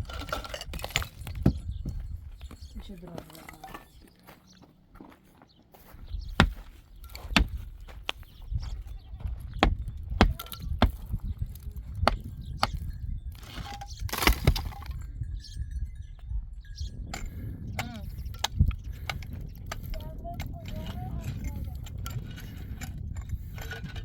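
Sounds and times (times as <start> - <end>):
sharp knocks and cracks: 6.4 - 8.2, 12.0 - 15.0.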